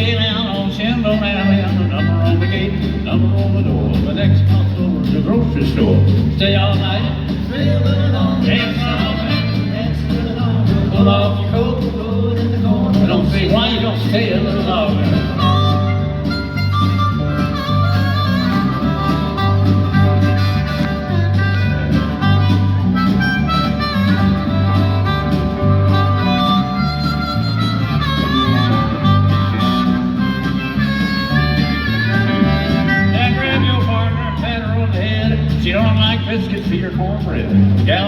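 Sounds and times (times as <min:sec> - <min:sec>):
country band playing: 0:00.0 - 0:38.0
harmonica solo: 0:15.2 - 0:33.6.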